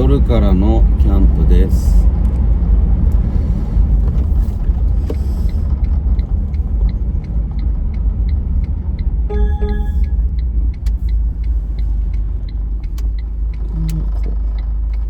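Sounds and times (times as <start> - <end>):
car engine and tyre rumble: 0.0 - 15.0
light regular ticking: 4.8 - 9.2, 10.0 - 15.0.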